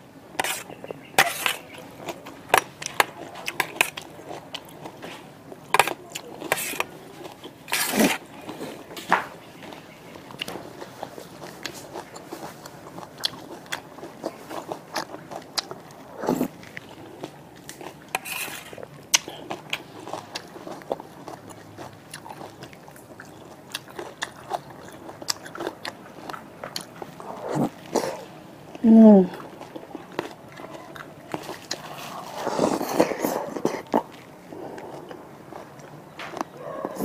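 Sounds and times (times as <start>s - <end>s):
chewing and crunching vegetables: 0.3s - 37.0s
spoon scraping metal tray: 0.4s - 1.8s, 6.5s - 6.9s, 7.7s - 8.2s, 18.1s - 18.8s.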